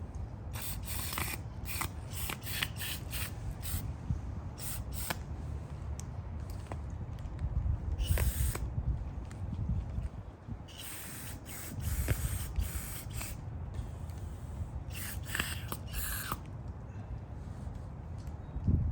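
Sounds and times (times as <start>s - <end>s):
aerosol spray hissing: 0.6s - 3.9s, 4.6s - 5.2s, 8.0s - 8.6s, 10.7s - 13.4s, 14.9s - 16.4s.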